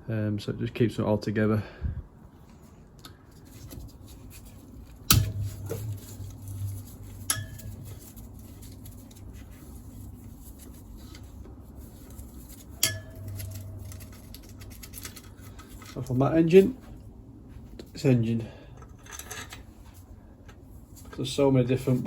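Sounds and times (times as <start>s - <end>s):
metal tools clinking on engine casing: 12.7s - 16.0s.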